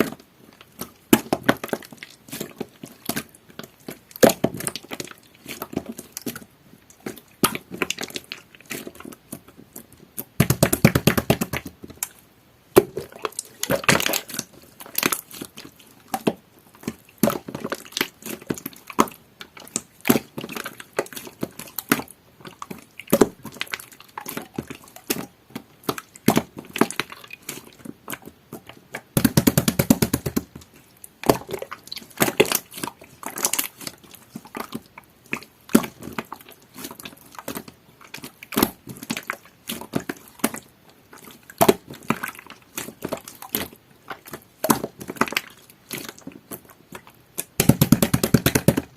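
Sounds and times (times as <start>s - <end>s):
slime squished by hand: 10.2s - 48.9s.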